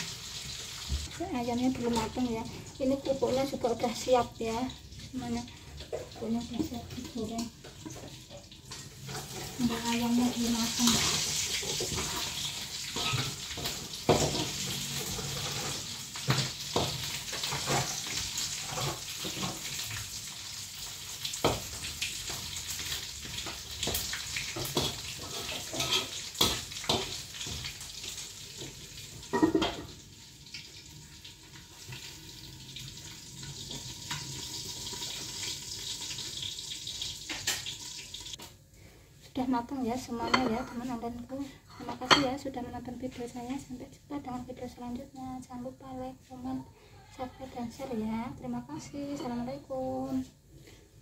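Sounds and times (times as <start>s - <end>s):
chicken sizzling in hot oil: 0.0s - 38.4s.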